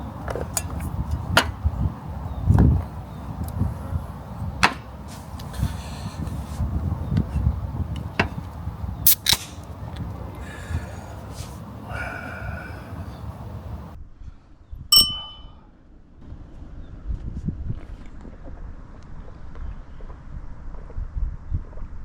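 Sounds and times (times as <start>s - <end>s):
low wind rumble: 0.0s - 22.0s
metallic clink: 14.9s - 15.6s.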